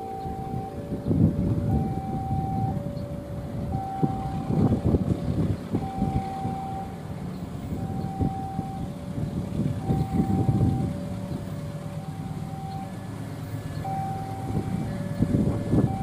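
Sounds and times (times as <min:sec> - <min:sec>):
level-crossing alarm two-tone: 0:00.0 - 0:05.0, 0:05.8 - 0:07.0, 0:07.7 - 0:09.0, 0:09.8 - 0:13.0, 0:13.8 - 0:16.0
passing train rumble: 0:00.0 - 0:16.0.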